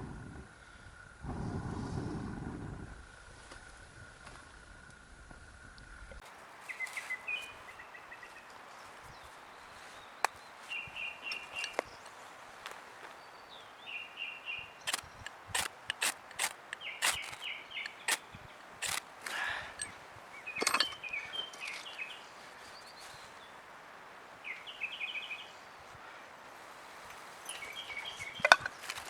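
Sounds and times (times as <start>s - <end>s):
small birds chirping: 6.2s - 23.7s, 24.4s - 26.1s, 27.1s - 29.0s
sharp clicks: 14.9s - 19.9s.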